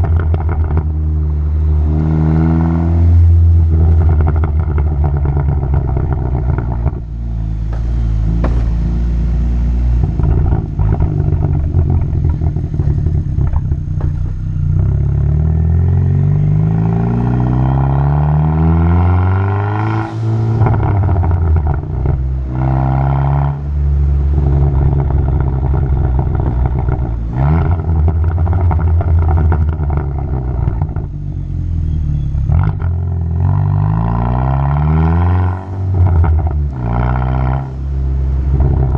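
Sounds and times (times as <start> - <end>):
car exhaust revving: 0.0 - 38.9.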